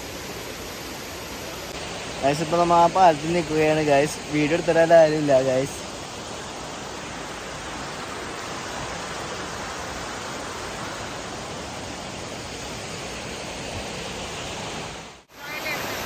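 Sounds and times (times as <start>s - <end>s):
waterfall stream rushing: 0.0s - 16.0s.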